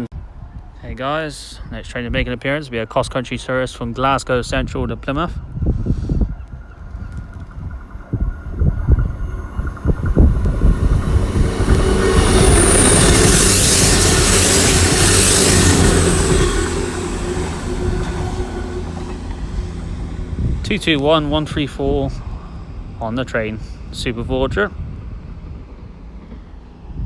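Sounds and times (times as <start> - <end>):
train passing: 4.4 - 27.0
high whine: 5.6 - 24.5.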